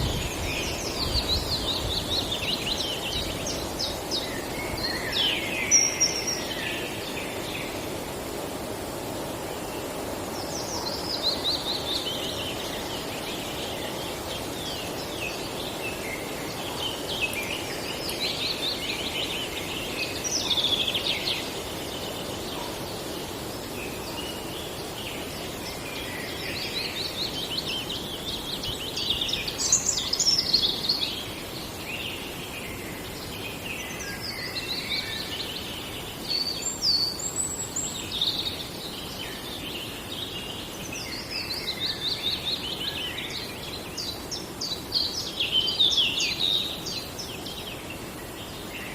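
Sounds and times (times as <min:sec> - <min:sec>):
songbirds singing: 0:00.0 - 0:48.9
steady low background noise: 0:00.0 - 0:48.9.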